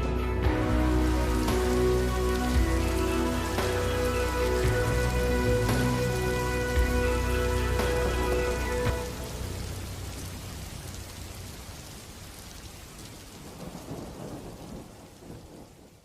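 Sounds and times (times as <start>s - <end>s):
held music chord: 0.0s - 9.9s
steady rain: 0.0s - 16.0s
low thunder rumble: 13.3s - 16.0s.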